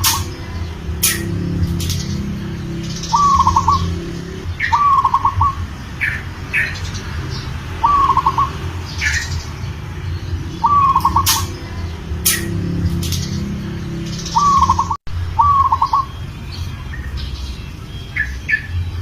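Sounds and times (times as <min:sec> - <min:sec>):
small birds chirping: 0:00.0 - 0:19.0
dove cooing: 0:02.9 - 0:06.8, 0:07.7 - 0:09.5, 0:10.4 - 0:12.7, 0:14.3 - 0:16.1.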